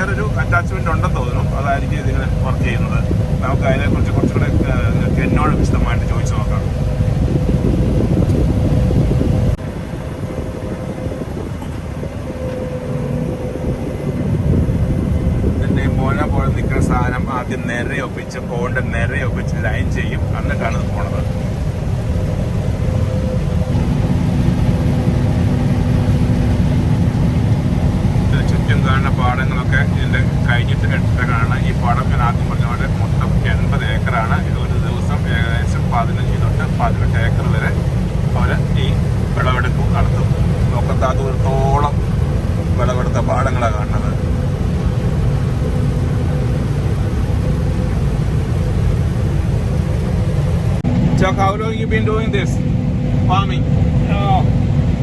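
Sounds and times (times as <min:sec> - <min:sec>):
combine harvester rumbling: 0:00.0 - 0:55.0
low machine hum: 0:00.0 - 0:55.0.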